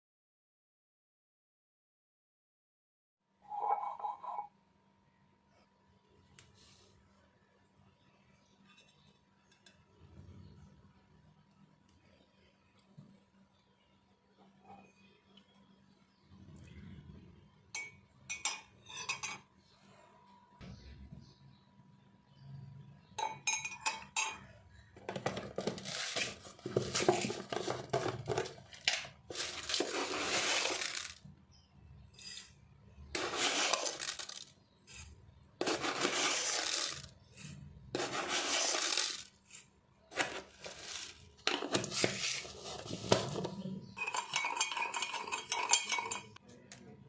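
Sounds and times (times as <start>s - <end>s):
metal spoon scraping in a mug: 3.5s - 4.5s, 8.4s - 9.8s, 17.8s - 19.5s, 32.1s - 46.4s.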